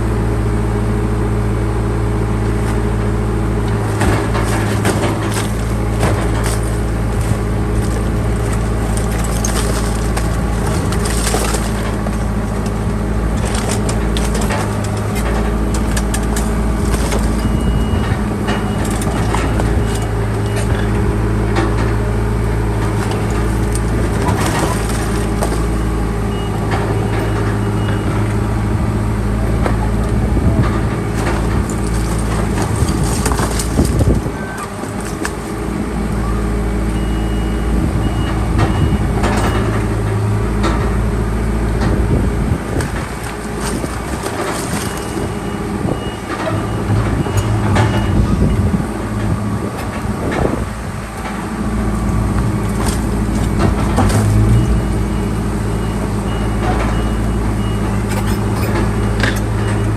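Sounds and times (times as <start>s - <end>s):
bulldozer diesel engine running: 0.0s - 59.9s
debris cracking and snapping: 3.7s - 20.9s, 22.8s - 27.6s, 30.0s - 35.6s, 42.6s - 45.4s.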